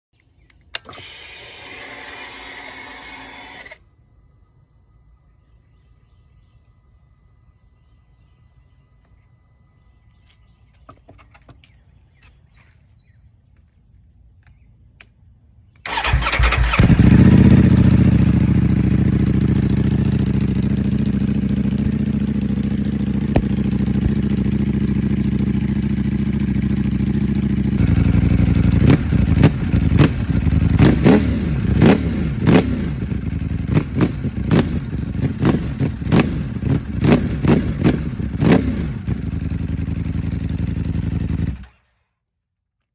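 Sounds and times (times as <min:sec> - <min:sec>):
motorcycle engine starting: 0:00.2 - 0:03.8, 0:15.8 - 0:42.2
engine revving: 0:15.8 - 0:42.0
motorcycle engine idling: 0:15.9 - 0:41.9.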